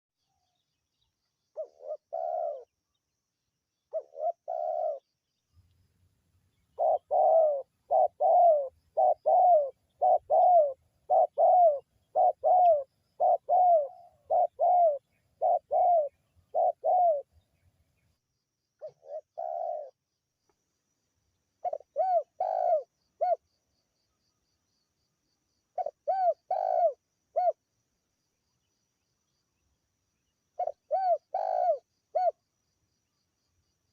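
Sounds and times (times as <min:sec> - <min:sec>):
dove cooing: 0:01.5 - 0:02.8, 0:03.9 - 0:05.1, 0:06.7 - 0:17.4, 0:18.8 - 0:20.0, 0:21.6 - 0:23.5, 0:25.7 - 0:27.6, 0:30.6 - 0:32.4.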